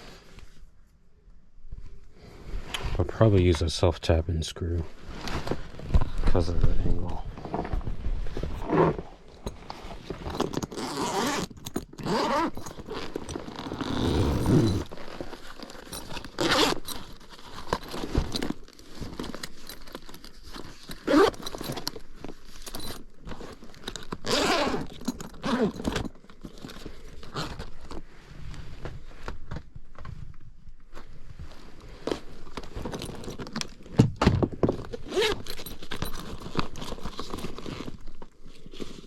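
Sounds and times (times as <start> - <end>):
hand tools scraping and rasping: 8.6 - 18.5.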